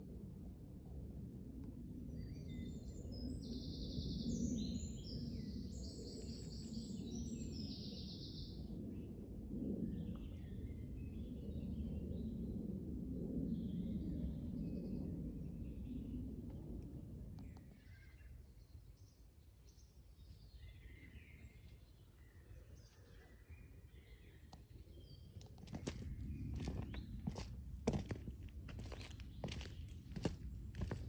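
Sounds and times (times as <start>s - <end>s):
steady low rumble: 25.3s - 31.0s.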